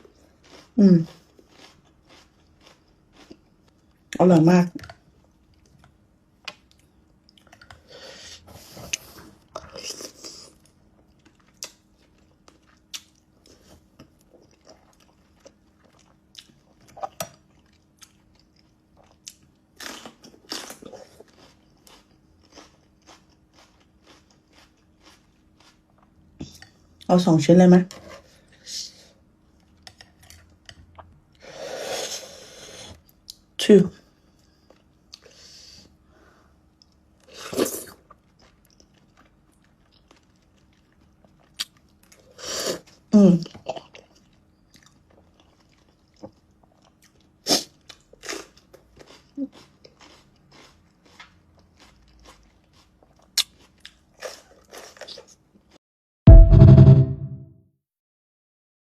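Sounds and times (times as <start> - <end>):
wet chewing sounds: 0.0 - 4.0, 8.8 - 27.1, 36.8 - 55.7.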